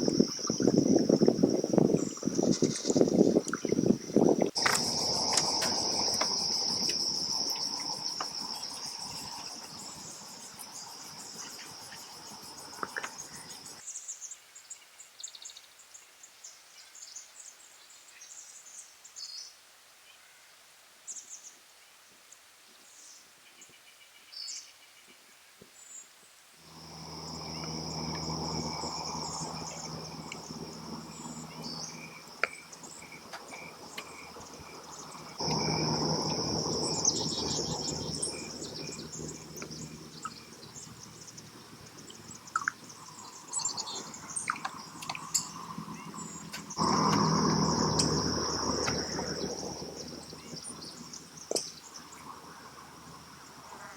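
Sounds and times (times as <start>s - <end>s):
low steady hum: 0.0s - 13.8s, 26.6s - 53.9s
insects trilling: 0.0s - 14.2s, 26.6s - 53.9s.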